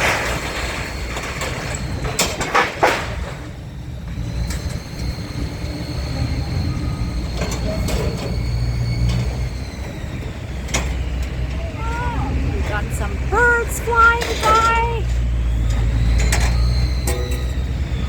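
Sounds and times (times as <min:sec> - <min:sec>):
machine engine running low: 0:00.0 - 0:18.0
thin steady whine: 0:03.6 - 0:18.0.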